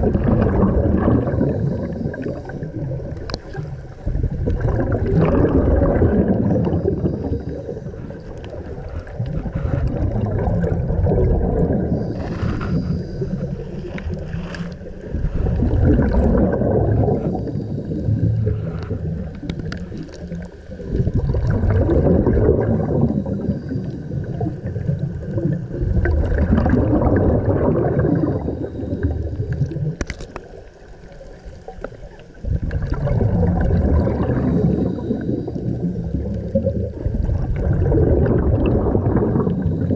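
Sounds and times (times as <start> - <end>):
exhaled bubbles gurgling: 0.0 - 39.9
diver inhaling through regulator: 0.5 - 2.9, 5.0 - 25.0, 26.8 - 29.7, 33.4 - 39.9.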